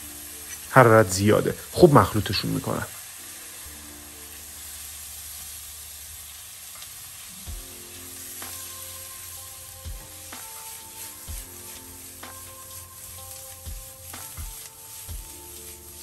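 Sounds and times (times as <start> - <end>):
chicken sizzling in a pan: 0.0 - 16.0.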